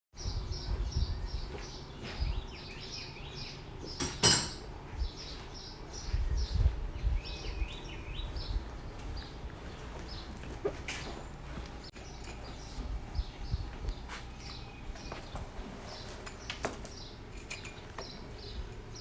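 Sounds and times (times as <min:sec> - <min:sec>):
songbird chirping: 0:00.2 - 0:19.0
sharp clink: 0:04.0 - 0:04.7.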